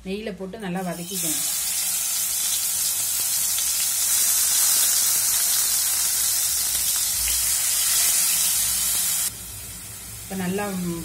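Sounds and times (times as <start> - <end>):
food frying hiss: 0.9 - 11.0.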